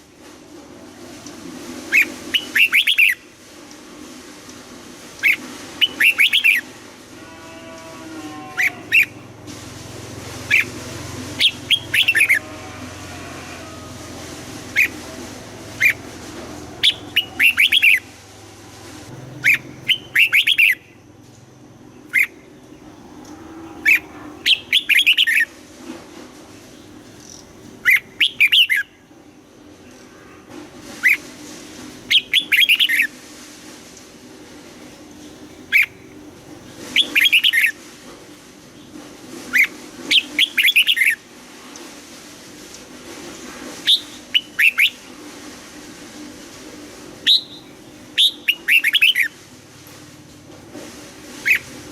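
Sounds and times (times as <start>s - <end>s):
bird singing: 19.4s - 21.0s.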